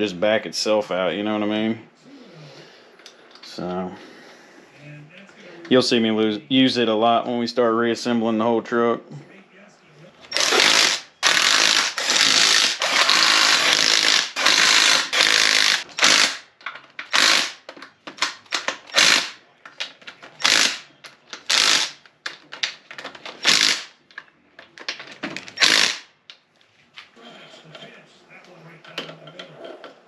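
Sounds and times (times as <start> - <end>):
impact wrench bursts: 10.3 - 19.4, 20.4 - 22.0, 23.3 - 24.0, 25.5 - 26.1.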